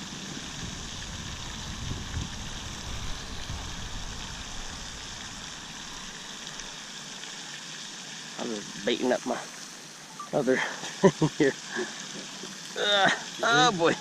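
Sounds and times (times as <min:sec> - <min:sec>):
low rumbling: 0:00.0 - 0:06.8
steady outdoor hiss: 0:00.0 - 0:14.0.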